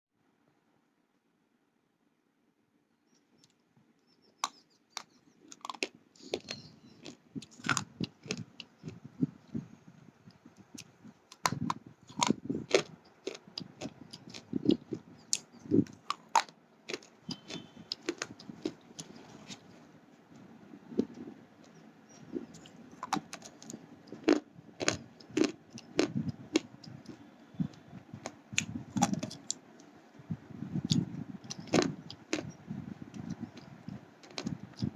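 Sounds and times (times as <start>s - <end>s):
crunching chewing: 4.4s - 9.1s, 10.6s - 19.8s, 20.9s - 29.9s, 30.8s - 32.6s, 33.2s - 34.9s
slate pencils cracking in teeth: 11.3s - 19.2s, 22.4s - 27.2s, 28.6s - 29.9s.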